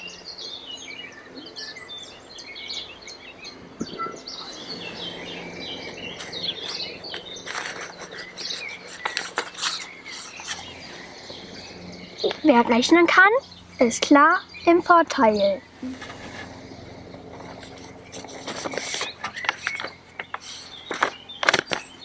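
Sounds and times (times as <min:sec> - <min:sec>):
songbirds chirping and singing: 0:00.0 - 0:22.0
brief rustles: 0:05.8 - 0:10.7, 0:17.4 - 0:21.9.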